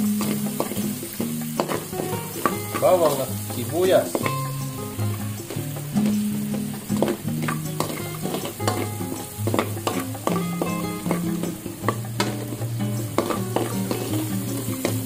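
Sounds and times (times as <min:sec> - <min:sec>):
background music with bass: 0:00.0 - 0:15.0
onion sizzling in hot oil: 0:00.0 - 0:15.0
metal spatula scraping a wok: 0:05.5 - 0:14.9.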